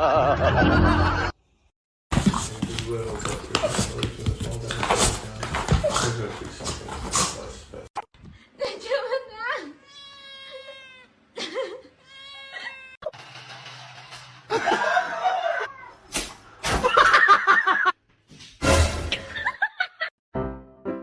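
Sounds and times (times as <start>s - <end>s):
people laughing: 0.0s - 1.3s, 14.5s - 15.7s, 16.8s - 18.0s
cat meowing: 9.8s - 11.2s, 12.0s - 13.0s.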